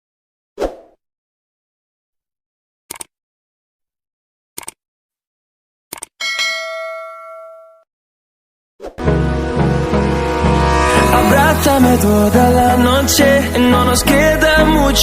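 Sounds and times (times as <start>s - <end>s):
short clicks: 2.9s - 3.1s, 4.6s - 4.8s, 5.9s - 6.2s
bell-like ding: 6.2s - 7.9s.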